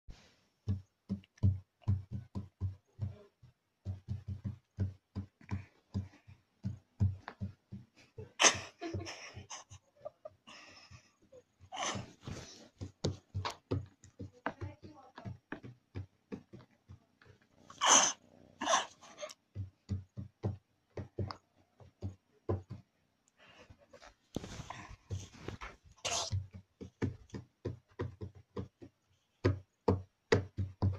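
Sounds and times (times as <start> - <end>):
fingers tapping on hard surface: 0.6 - 8.0, 12.8 - 17.6, 19.3 - 22.9, 26.3 - 30.9.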